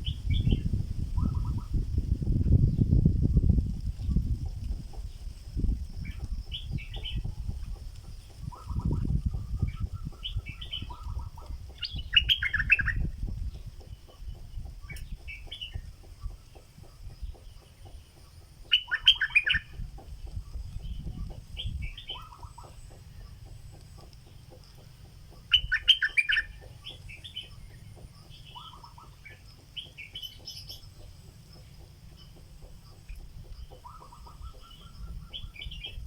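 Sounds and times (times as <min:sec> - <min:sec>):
bird singing bubbly notes: 0:08.4 - 0:15.9, 0:18.7 - 0:19.8, 0:25.4 - 0:31.6.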